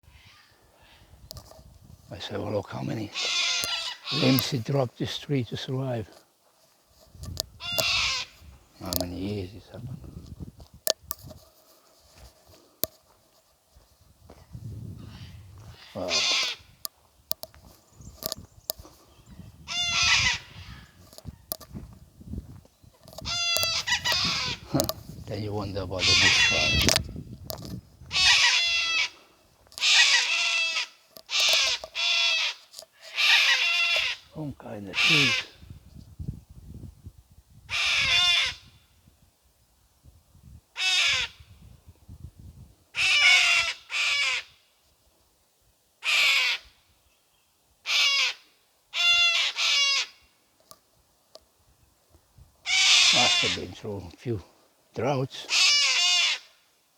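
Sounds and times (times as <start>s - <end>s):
crow cawing: 3.0s - 4.5s, 7.6s - 8.4s, 15.2s - 16.8s, 19.7s - 21.0s, 23.2s - 24.8s, 26.0s - 27.0s, 28.1s - 34.3s, 34.9s - 35.6s, 37.7s - 38.8s, 40.8s - 41.4s, 43.0s - 44.6s, 46.0s - 46.7s, 47.8s - 50.3s, 52.6s - 53.8s, 55.4s - 56.6s
animal high-pitched call: 3.1s - 4.4s, 19.7s - 20.9s, 52.7s - 53.6s.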